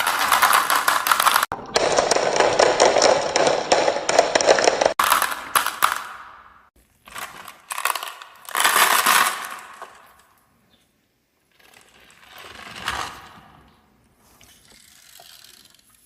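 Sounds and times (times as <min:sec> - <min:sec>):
marbles rolling on wooden track: 0:00.0 - 0:06.2.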